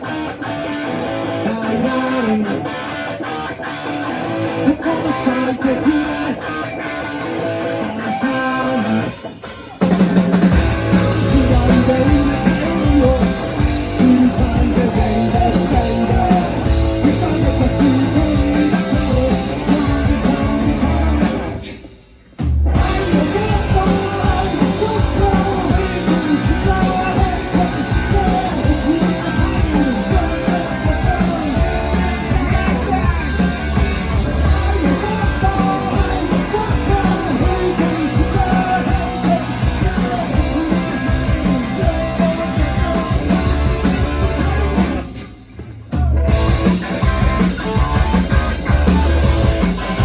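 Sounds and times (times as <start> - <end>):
drums: 0.0 - 50.0
electric guitar: 0.0 - 50.0
person singing: 4.6 - 6.6, 10.7 - 21.9, 22.8 - 45.2.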